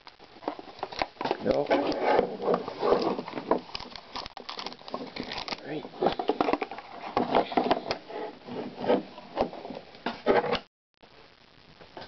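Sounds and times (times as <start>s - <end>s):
cardboard packaging scraping: 0.4s - 10.6s.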